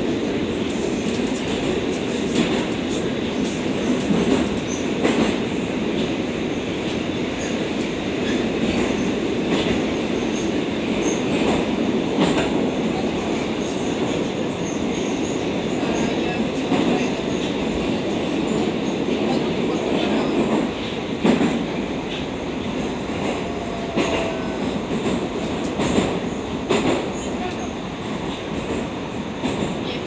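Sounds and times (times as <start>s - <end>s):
train running through tunnel: 0.0s - 30.0s.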